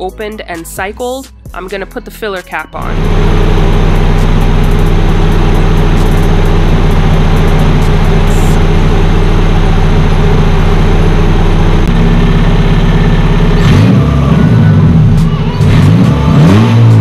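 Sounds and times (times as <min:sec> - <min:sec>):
car engine idling and revving: 0:02.7 - 0:17.0.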